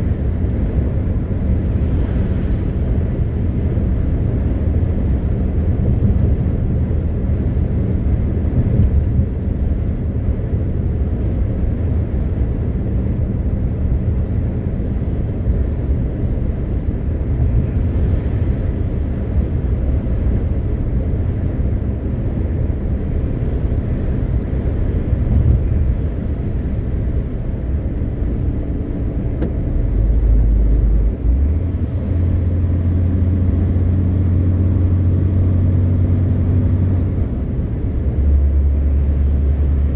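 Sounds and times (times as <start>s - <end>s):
road rumble: 0.0s - 39.9s
truck diesel engine drone: 9.4s - 39.9s.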